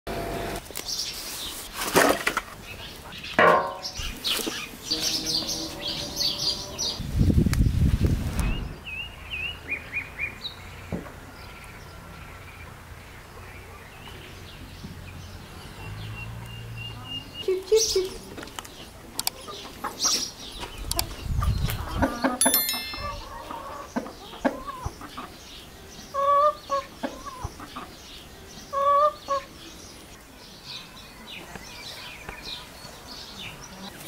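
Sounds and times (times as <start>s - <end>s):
birds chirping: 2.6s - 7.0s.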